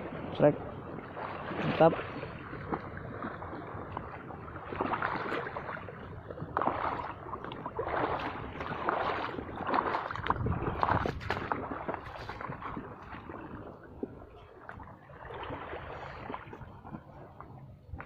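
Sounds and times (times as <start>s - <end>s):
sea waves splashing over rocks: 0.0s - 14.3s.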